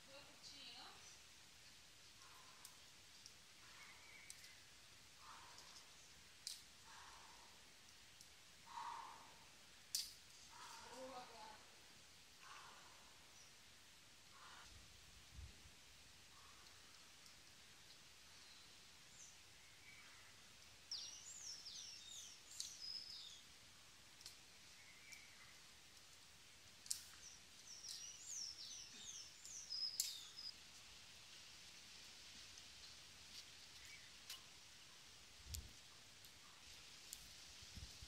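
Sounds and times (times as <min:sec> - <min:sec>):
small bird singing: 0:03.6 - 0:06.2, 0:18.3 - 0:23.5, 0:24.6 - 0:25.7, 0:26.9 - 0:30.6.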